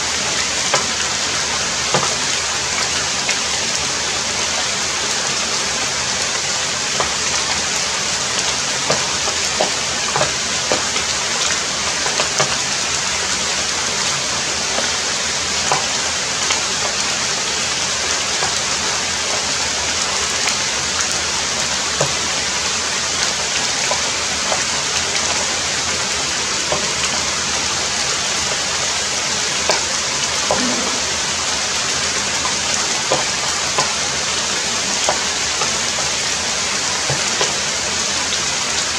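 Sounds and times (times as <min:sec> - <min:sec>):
heavy rain falling: 0:00.0 - 0:38.9
raindrops ticking: 0:00.1 - 0:03.8, 0:06.4 - 0:31.4.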